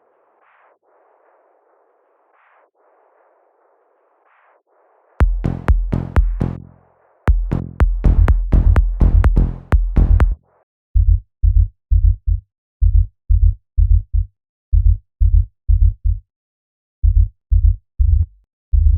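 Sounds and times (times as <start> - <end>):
deep bass thumps: 5.2 - 6.6, 7.3 - 10.4
electronic dance beat: 5.2 - 6.7, 7.3 - 10.4.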